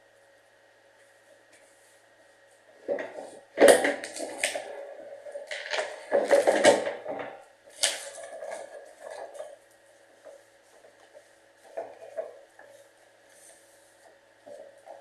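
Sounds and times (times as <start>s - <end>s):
faint steady hum: 0.0s - 15.0s
objects knocking and clattering: 2.8s - 9.6s, 10.3s - 12.8s.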